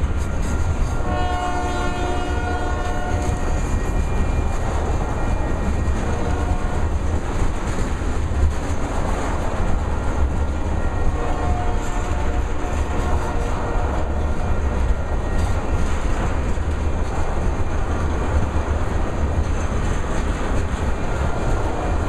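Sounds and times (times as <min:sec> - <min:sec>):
freight train rumbling on rails: 0:00.0 - 0:22.0
train wheel clatter: 0:00.0 - 0:22.0
locomotive air horn: 0:00.4 - 0:03.6, 0:06.0 - 0:06.9, 0:10.9 - 0:15.1, 0:21.4 - 0:22.0.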